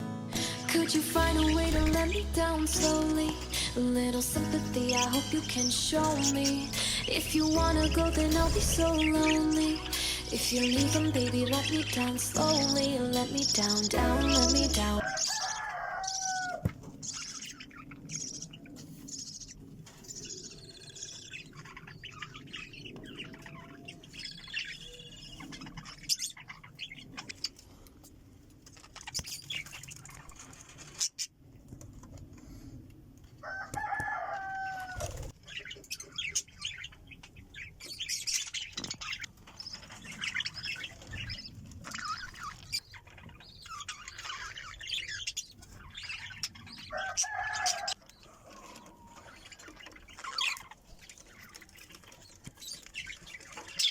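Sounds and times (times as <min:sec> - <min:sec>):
budgerigars chirping: 0:04.8 - 0:15.5, 0:17.0 - 0:27.5, 0:35.4 - 0:47.9
wing flapping: 0:08.0 - 0:09.8.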